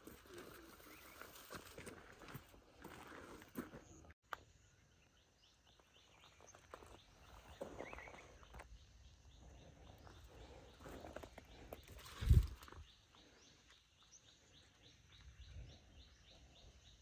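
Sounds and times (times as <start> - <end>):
distant bird chirps: 3.6 - 17.0.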